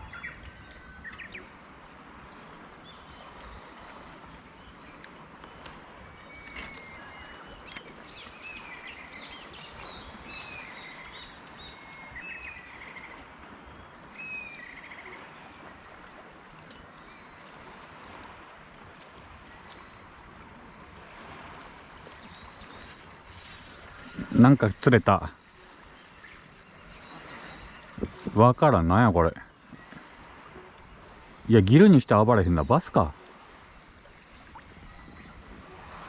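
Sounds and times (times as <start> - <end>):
birds chirping: 0.0 - 13.2, 21.7 - 35.7
outdoor background hiss: 19.3 - 36.0.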